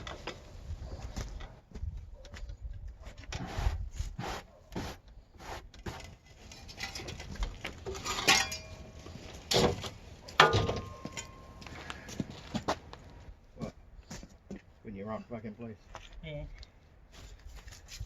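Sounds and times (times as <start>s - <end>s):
dirt and rocks scraping and knocking: 5.8s - 14.3s.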